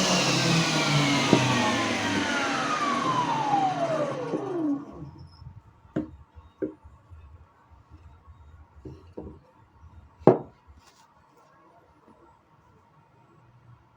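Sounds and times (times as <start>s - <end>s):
objects knocking on work surface: 8.9s - 9.4s, 10.3s - 10.6s.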